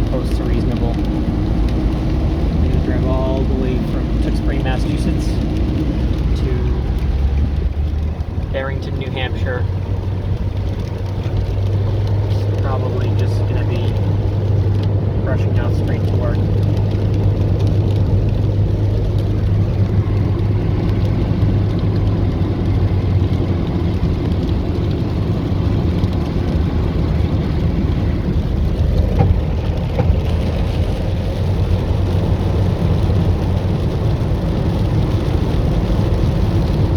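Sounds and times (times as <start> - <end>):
car road and engine rumble: 0.0 - 36.9
heavy rain: 0.0 - 36.9.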